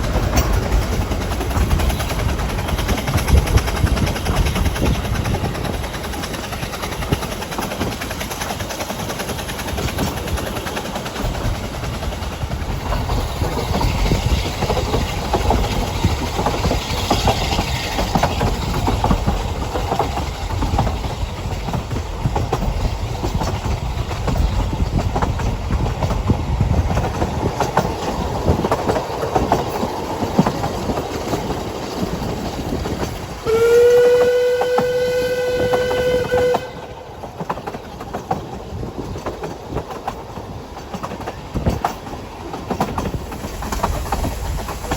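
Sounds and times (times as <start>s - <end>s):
train wheels clattering on rails: 0.0s - 44.9s
train whistle long note: 33.4s - 37.2s.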